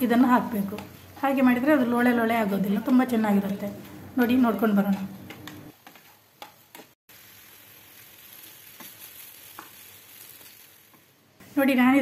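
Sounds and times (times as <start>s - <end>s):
okra sizzling in oil: 3.8s - 12.0s.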